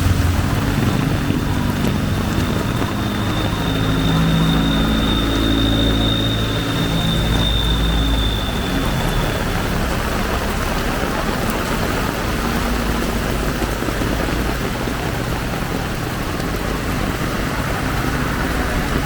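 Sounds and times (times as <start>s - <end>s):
heavy rain falling: 0.0s - 19.0s
vehicle engine humming: 0.0s - 19.0s.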